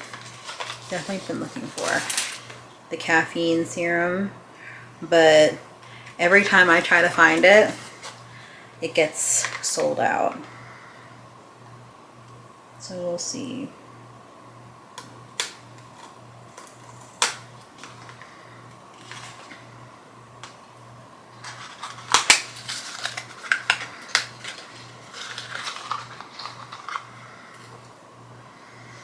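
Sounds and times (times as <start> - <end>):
packaging clicks: 0.0 - 2.6, 15.0 - 18.3, 18.9 - 19.6, 21.4 - 27.9
packaging rustling: 0.0 - 2.7, 5.8 - 8.6, 15.4 - 19.7, 21.4 - 28.0.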